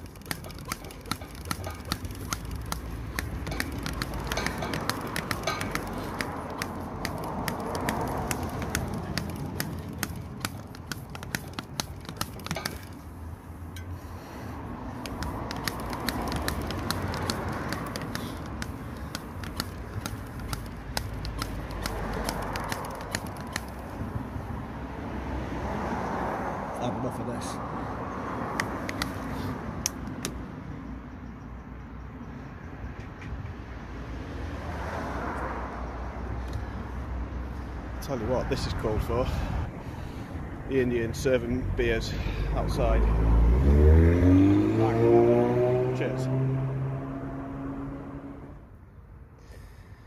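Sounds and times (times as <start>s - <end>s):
bicycle tyres clicking and crackling: 0.0s - 24.1s, 28.5s - 30.3s.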